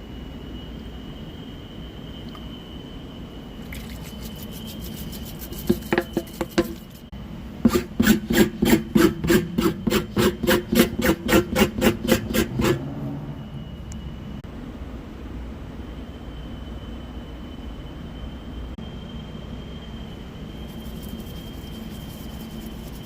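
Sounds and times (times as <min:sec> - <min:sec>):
reamer rasping in tire: 0:03.7 - 0:07.1, 0:07.7 - 0:13.1, 0:20.5 - 0:23.0.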